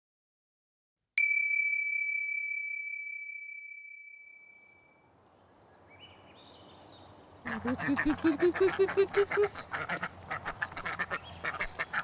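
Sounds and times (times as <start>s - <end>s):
metal chime ringing: 1.2s - 5.0s
rural outdoor ambience: 4.2s - 12.0s.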